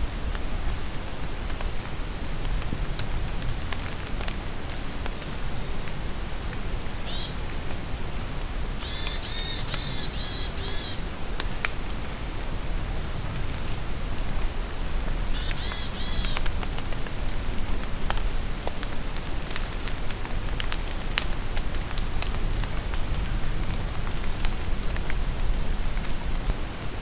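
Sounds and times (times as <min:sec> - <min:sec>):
rain falling in forest: 0:00.0 - 0:27.0
bird rapid calls: 0:05.1 - 0:05.9, 0:07.1 - 0:07.4, 0:08.8 - 0:11.1, 0:15.4 - 0:16.4.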